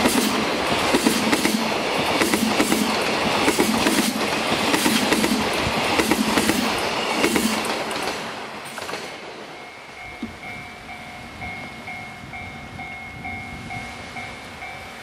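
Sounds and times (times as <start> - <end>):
train wheels clattering over rail joints: 0.0 - 9.4.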